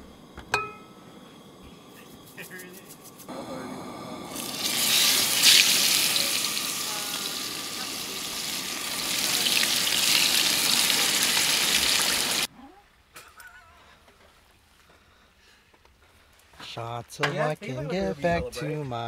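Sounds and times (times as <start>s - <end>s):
steaks sizzling in a pan: 4.3s - 12.5s.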